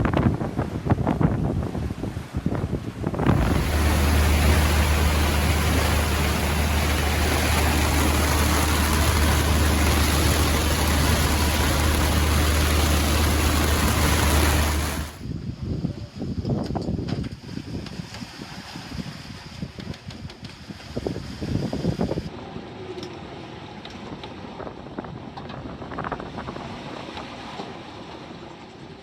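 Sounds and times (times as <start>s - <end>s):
strong wind: 0.0s - 27.5s
wind rumbling on microphone: 0.0s - 28.1s
seas breaking: 3.2s - 15.2s.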